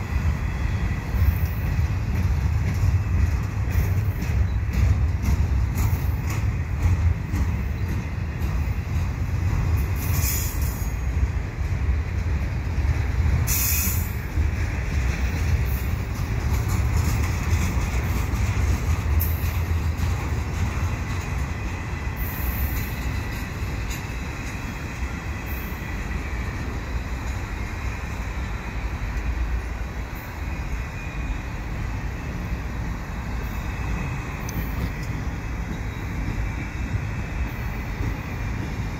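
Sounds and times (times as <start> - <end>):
train wheels rumbling: 0.0 - 38.9
high wheel squeals: 29.9 - 38.7.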